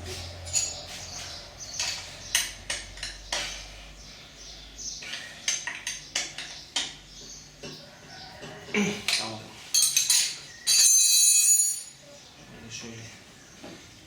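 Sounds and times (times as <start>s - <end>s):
metal tools clinking on engine parts: 0.3s - 3.7s, 9.1s - 12.0s.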